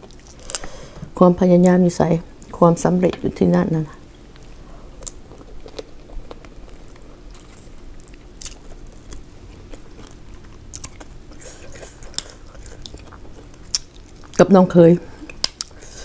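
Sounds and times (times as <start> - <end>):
person chewing: 0.0 - 1.1, 4.0 - 14.4, 15.1 - 16.0
sharp crunches and clicks: 4.3 - 11.2.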